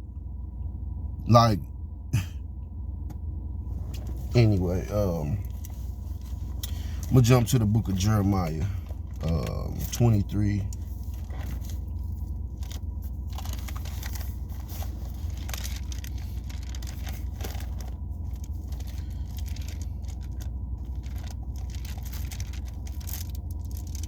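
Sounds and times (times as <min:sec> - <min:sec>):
steady low hum: 0:00.0 - 0:24.0
paper pages rustling: 0:10.7 - 0:24.0.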